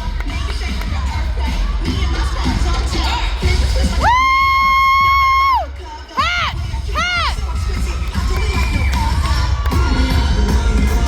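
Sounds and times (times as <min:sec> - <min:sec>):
high-pitched yell: 0:04.0 - 0:07.6.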